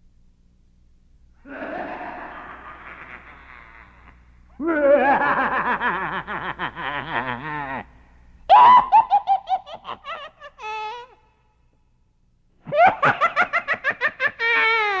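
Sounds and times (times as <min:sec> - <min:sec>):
laughter sound effect: 0:01.5 - 0:07.9, 0:08.6 - 0:11.1, 0:12.6 - 0:15.0.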